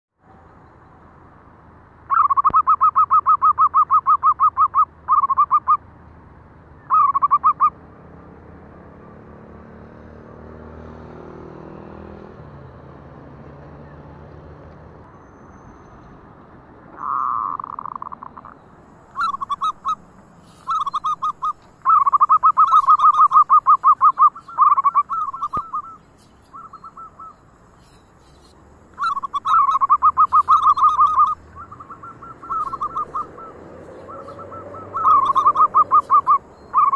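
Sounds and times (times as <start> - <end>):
high faint chirps: 15.0 - 36.9
doves cooing: 16.9 - 18.6, 19.2 - 27.4, 29.0 - 36.9.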